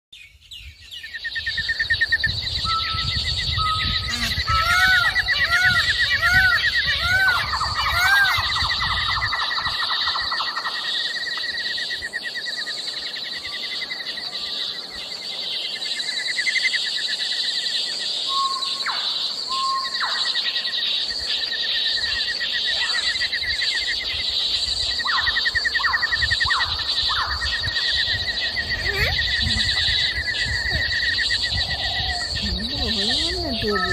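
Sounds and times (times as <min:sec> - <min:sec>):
lower trilling calls: 0:00.2 - 0:33.9
high trilling calls: 0:01.5 - 0:11.6, 0:25.0 - 0:33.9.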